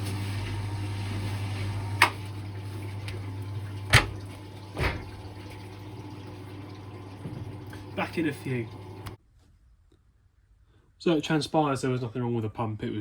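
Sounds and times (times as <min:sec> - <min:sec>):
drain pump humming: 0:00.0 - 0:09.2.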